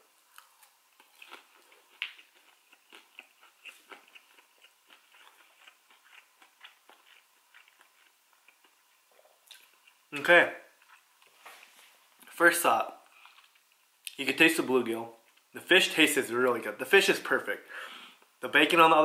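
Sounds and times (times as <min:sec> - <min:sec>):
person chewing crispy food: 0:00.0 - 0:10.1, 0:10.7 - 0:12.2, 0:13.0 - 0:14.1.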